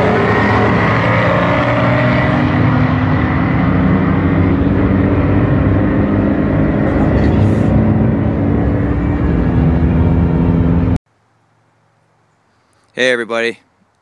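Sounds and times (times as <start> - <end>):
car engine running: 2.3 - 11.0.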